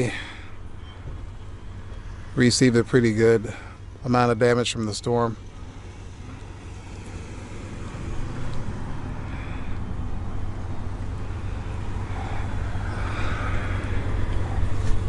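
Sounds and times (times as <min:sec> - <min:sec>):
car engine: 0:00.0 - 0:15.0
road noise: 0:00.0 - 0:15.0.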